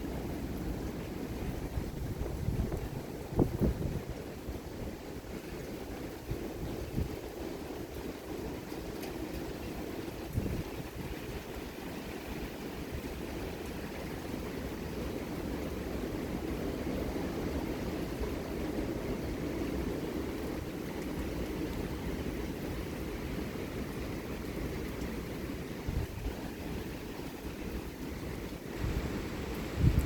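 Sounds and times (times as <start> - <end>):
wind buffeting microphone: 0.8 - 30.0
strong wind rushing: 28.8 - 30.0.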